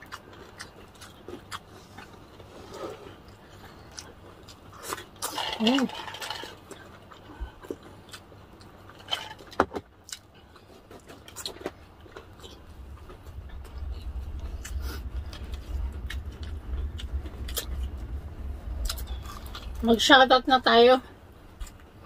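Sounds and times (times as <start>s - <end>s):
chewing fried chicken: 0.0s - 19.8s
low rumble: 11.7s - 22.0s.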